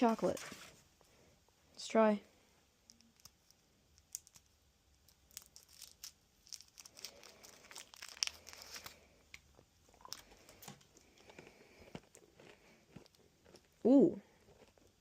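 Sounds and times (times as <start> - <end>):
wrapper tearing and crinkling: 2.9 - 9.0.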